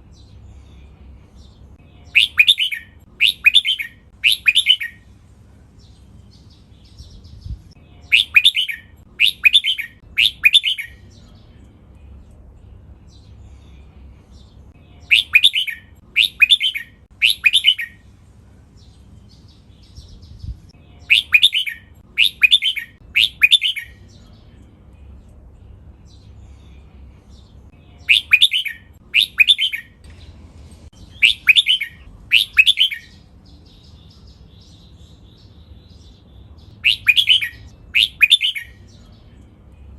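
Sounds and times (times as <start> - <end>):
bulbul singing whistled phrases: 1.9 - 5.1, 6.8 - 11.4, 14.9 - 18.0, 19.4 - 24.6, 27.8 - 30.1, 31.0 - 35.7, 36.5 - 39.4.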